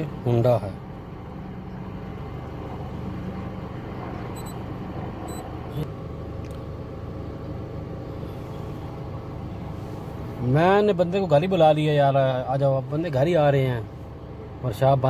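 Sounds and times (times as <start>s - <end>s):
faint short beeps: 4.3s - 4.6s.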